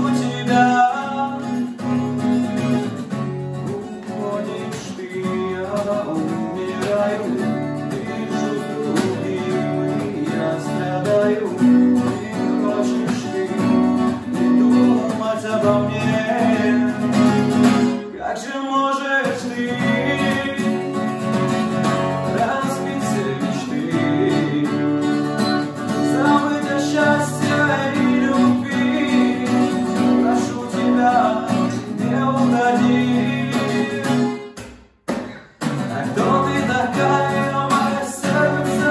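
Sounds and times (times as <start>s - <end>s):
person singing: 0.0s - 1.8s, 3.5s - 21.3s, 22.0s - 34.6s, 35.7s - 38.9s
acoustic guitar strumming: 0.0s - 38.9s.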